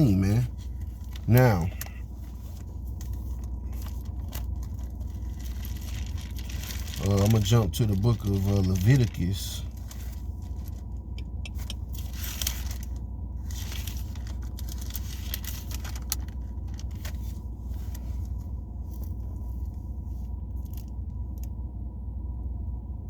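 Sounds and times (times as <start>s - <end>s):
steady low hum: 0.0s - 23.0s
book pages turning: 11.6s - 18.4s.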